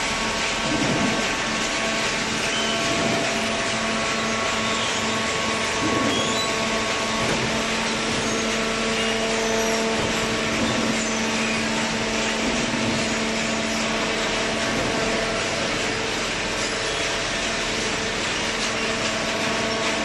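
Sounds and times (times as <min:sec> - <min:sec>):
constant machine whine: 0:00.0 - 0:20.0
noisy machine background: 0:00.0 - 0:20.0
pump motor hum: 0:00.0 - 0:20.0.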